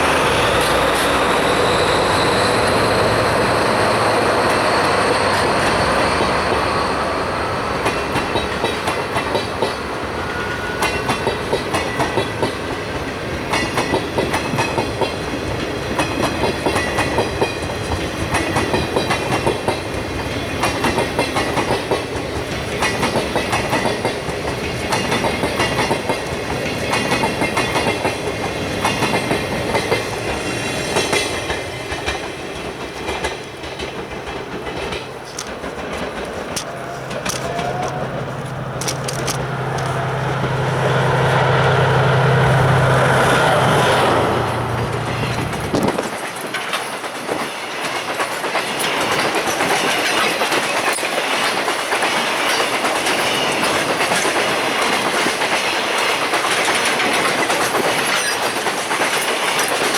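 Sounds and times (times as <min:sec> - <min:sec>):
train rolling past: 0:00.0 - 0:59.9
wheels clacking over rail joints: 0:00.0 - 0:59.9.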